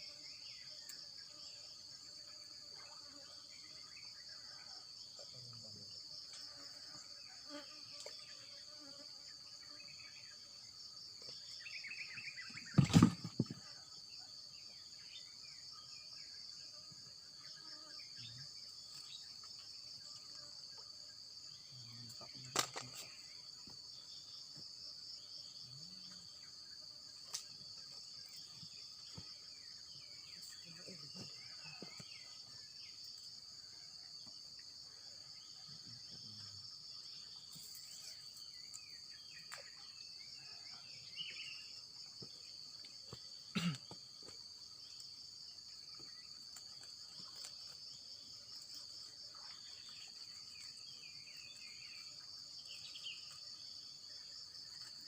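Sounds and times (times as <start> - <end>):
faint chirps: 0.0 - 55.0
insects trilling: 0.0 - 55.0
brief knocks: 12.7 - 13.6.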